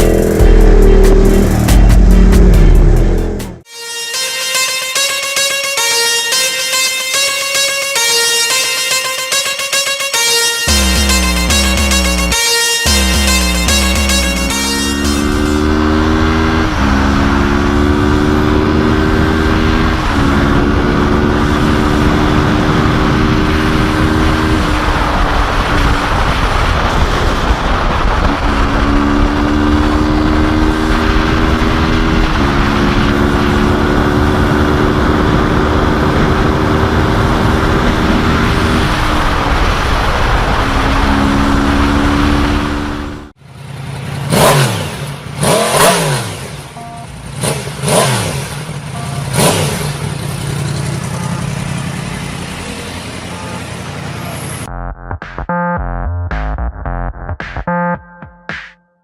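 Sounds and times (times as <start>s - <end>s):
motorcycle engine accelerating hard: 0.0s - 3.6s, 10.7s - 54.7s
wind and road noise: 14.6s - 54.7s.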